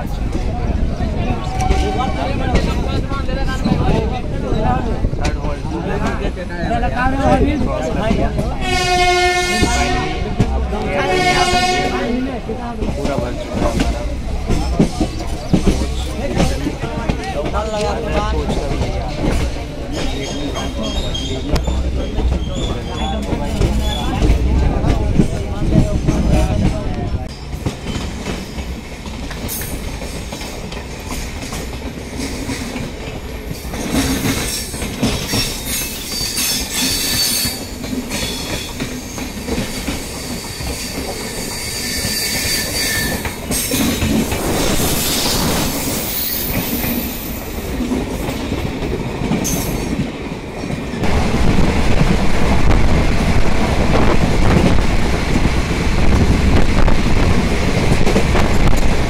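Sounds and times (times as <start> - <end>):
train wheels rumbling and clattering: 0.0 - 59.0
high wheel squeals: 35.4 - 43.7.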